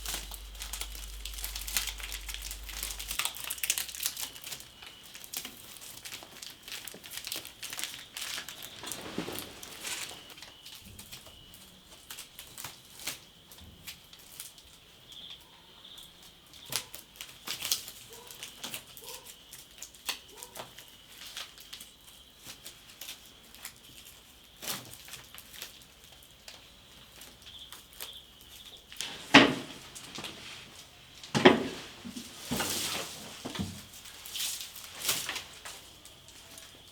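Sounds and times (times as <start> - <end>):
faint high-pitched hum: 0.0 - 5.2
rustles and clicks of handling: 0.0 - 15.4, 16.5 - 36.9.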